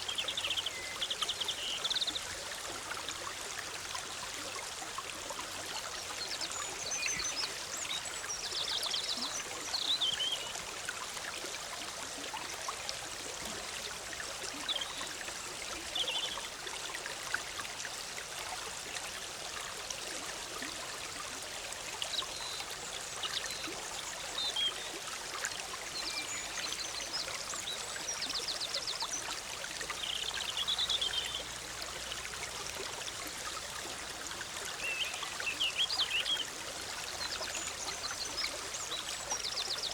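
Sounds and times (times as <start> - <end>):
stream flowing: 0.0 - 39.9
songbirds calling: 26.0 - 31.6, 34.7 - 36.5.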